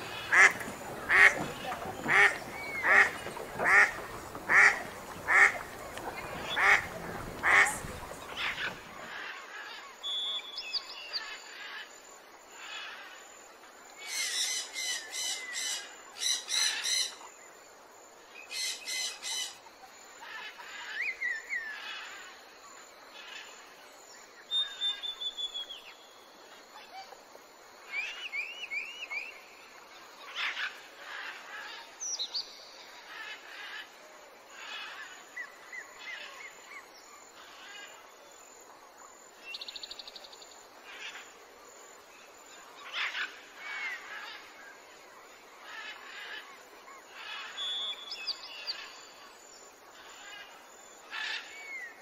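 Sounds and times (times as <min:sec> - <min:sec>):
soft steady hiss: 0:00.0 - 0:52.0
ducklings peeping: 0:00.1 - 0:08.7
duck quacking: 0:00.2 - 0:05.7, 0:06.4 - 0:07.8.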